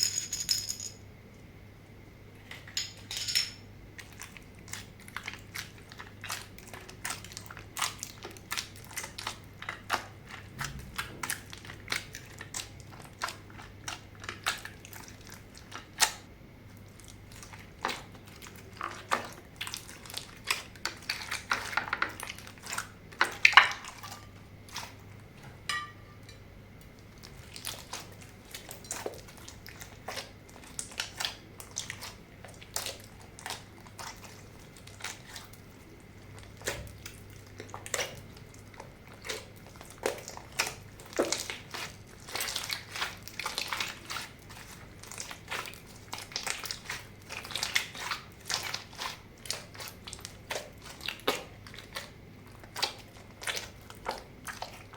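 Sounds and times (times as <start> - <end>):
hands squishing slime: 27.2 - 54.9.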